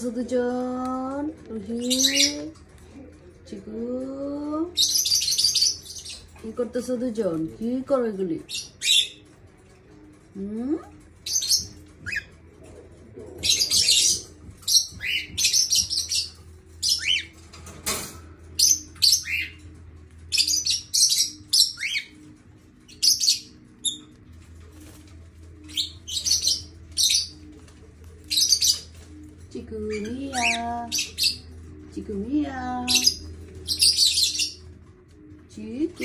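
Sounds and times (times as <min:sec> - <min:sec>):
cockatiel chirping: 0:11.3 - 0:12.4, 0:13.5 - 0:17.3.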